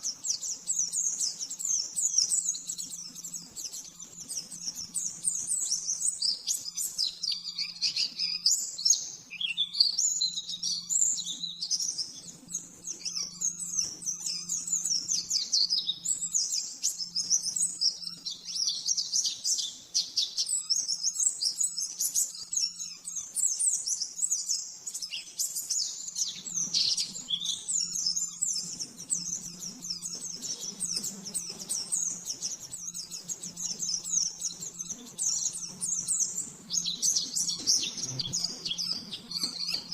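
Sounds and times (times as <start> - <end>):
bird twittering song: 0.0 - 39.9
faint low hum: 25.8 - 39.9.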